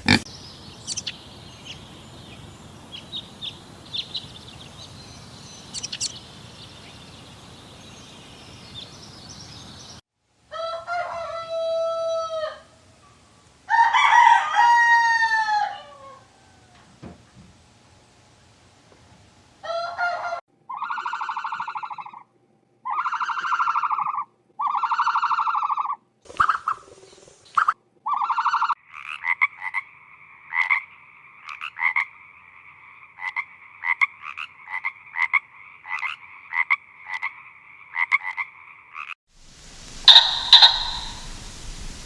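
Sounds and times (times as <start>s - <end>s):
frogs croaking: 0.0s - 10.0s, 28.3s - 39.2s, 40.0s - 41.5s
trilling frog chorus: 0.0s - 10.0s, 28.4s - 39.2s, 40.0s - 41.3s.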